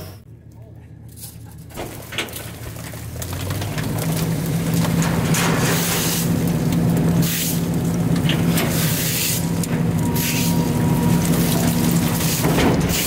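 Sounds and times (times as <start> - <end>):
garbage truck engine revving: 1.7 - 13.0.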